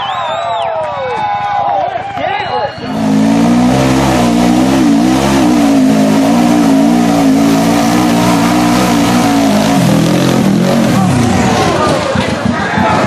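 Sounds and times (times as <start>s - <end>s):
utility vehicle engine revving high: 2.8s - 12.5s.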